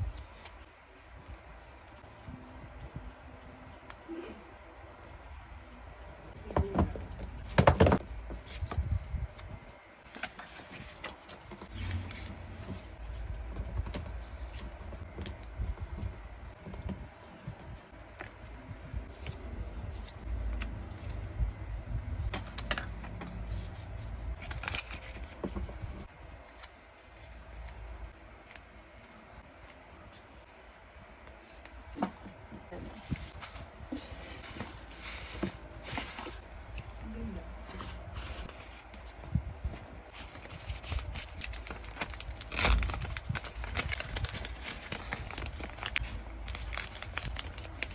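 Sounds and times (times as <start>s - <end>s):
packaging rustling: 24.3s - 26.1s, 37.6s - 47.9s.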